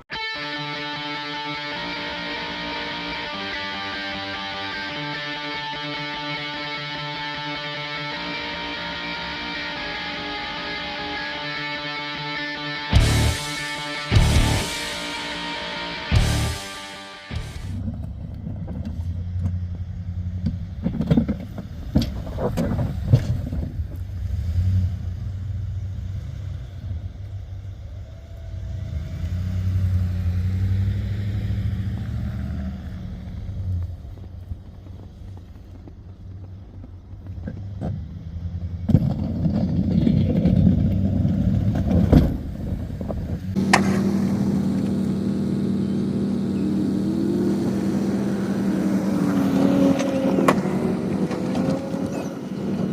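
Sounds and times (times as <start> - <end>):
truck engine under load: 28.5 - 52.9.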